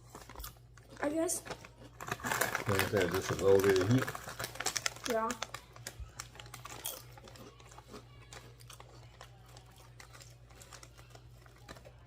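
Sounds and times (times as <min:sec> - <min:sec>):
potato chips being chewed: 0:00.0 - 0:12.0.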